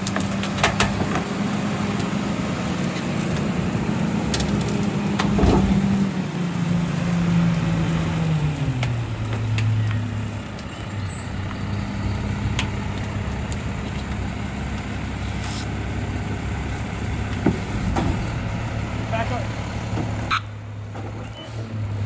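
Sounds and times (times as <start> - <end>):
garbage truck engine idling: 0.0 - 22.0
clicks and knocks from truck body: 4.3 - 6.1.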